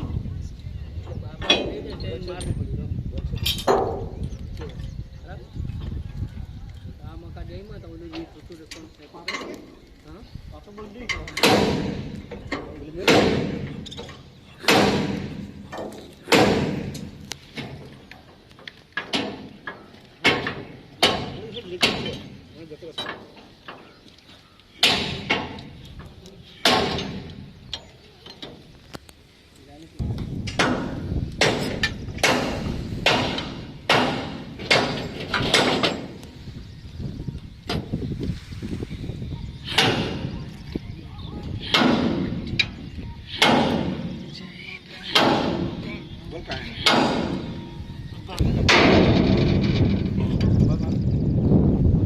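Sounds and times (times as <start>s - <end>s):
hammer striking steel bolts: 11.1s - 17.8s, 19.0s - 22.4s, 24.8s - 25.7s, 26.6s - 27.4s, 30.5s - 36.2s, 41.6s - 44.2s, 45.1s - 45.8s, 46.8s - 47.6s.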